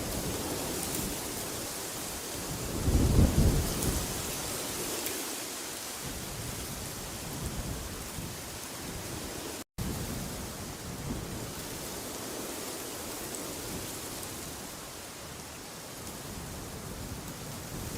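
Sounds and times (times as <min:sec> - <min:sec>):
wind rushing hiss: 0:00.0 - 0:17.9.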